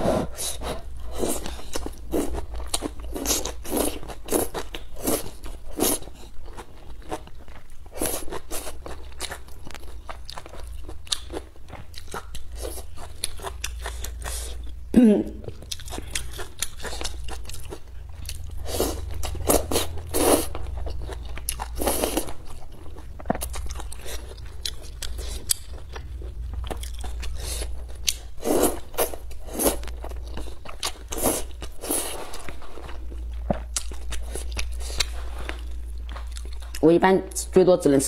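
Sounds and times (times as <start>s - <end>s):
chewing and biting noodles: 0.2s - 14.7s, 15.6s - 36.8s.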